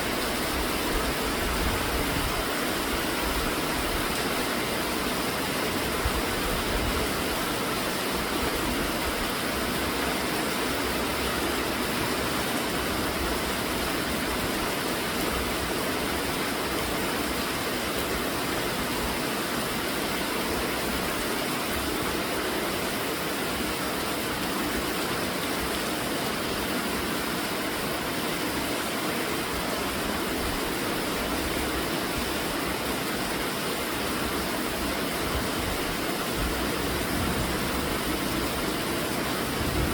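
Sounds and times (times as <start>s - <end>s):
heavy rainfall: 0.0s - 39.9s.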